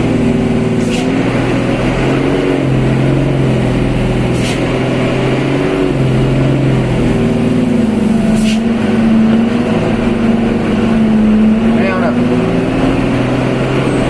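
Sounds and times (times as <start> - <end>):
truck engine under load: 0.0 - 14.0
short air hisses: 8.4 - 8.7.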